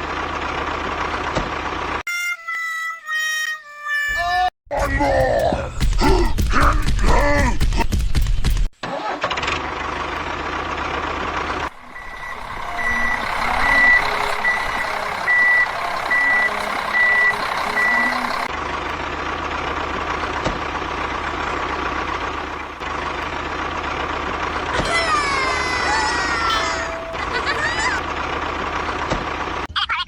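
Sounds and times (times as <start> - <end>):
truck engine running: 0.0 - 2.0, 4.7 - 29.8
reversing alarm beeping: 11.7 - 18.5.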